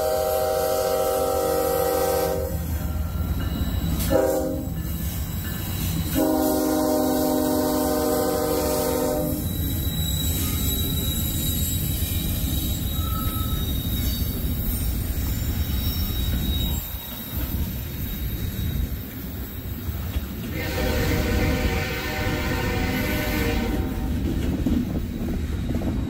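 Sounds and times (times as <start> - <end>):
locomotive air horn: 0.0 - 2.6, 4.0 - 4.8, 6.1 - 9.5, 20.5 - 24.2
train wheels rumbling on rail: 0.0 - 26.0
high wheel squeal: 2.6 - 6.2, 8.7 - 21.6.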